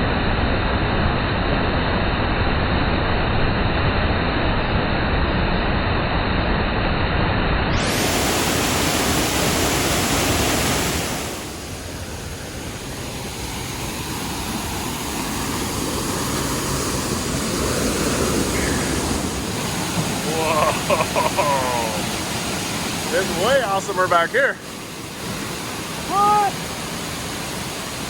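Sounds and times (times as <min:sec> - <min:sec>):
waterfall rushing: 0:07.7 - 0:28.0.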